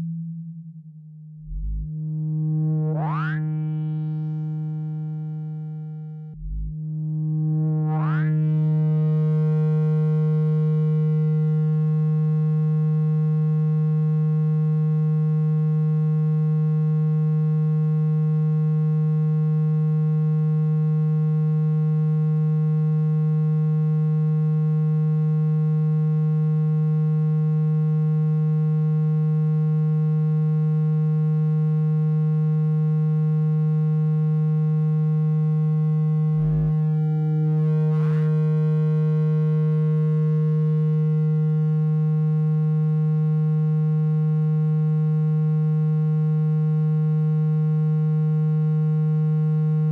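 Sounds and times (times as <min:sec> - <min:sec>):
steady low electronic tone: 0:00.0 - 0:14.4, 0:34.6 - 0:42.6.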